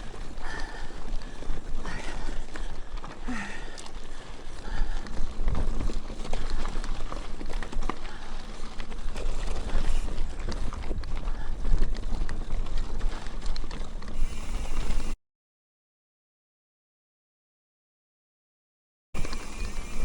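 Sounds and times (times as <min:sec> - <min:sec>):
wind rumbling on microphone: 0:00.0 - 0:15.1
bike rattling on rocky trail: 0:00.0 - 0:15.2, 0:19.2 - 0:20.0.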